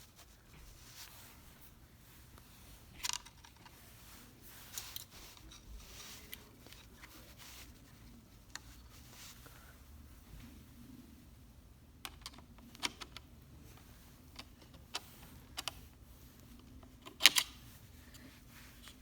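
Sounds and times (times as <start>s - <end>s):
screwdriver clicks and scrapes: 17.1s - 17.6s.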